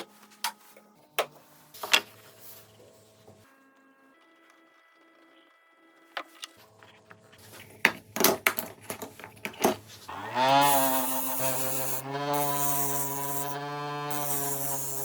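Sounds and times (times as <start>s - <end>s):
power tool motor running: 10.1s - 15.0s.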